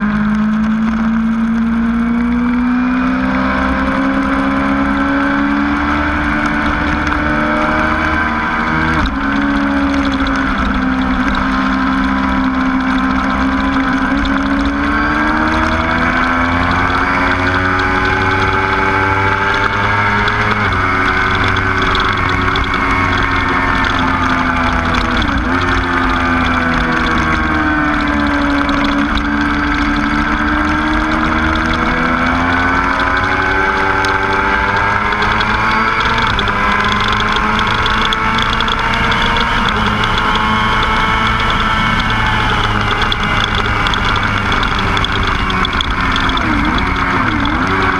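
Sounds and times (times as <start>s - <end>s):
motorcycle engine running hard: 0.0s - 47.9s.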